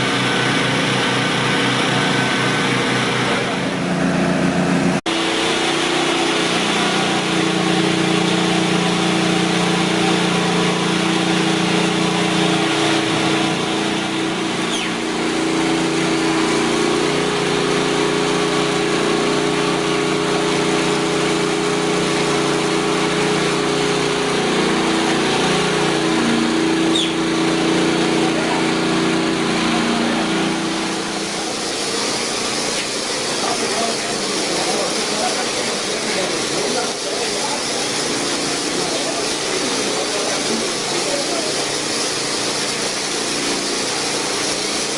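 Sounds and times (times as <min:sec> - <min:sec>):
machine engine running: 0:00.0 - 0:44.9
loud rushing noise: 0:07.2 - 0:34.6.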